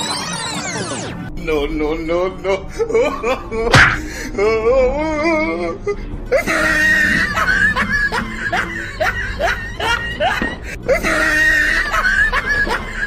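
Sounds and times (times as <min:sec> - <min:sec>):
comic background music: 0:00.0 - 0:13.0.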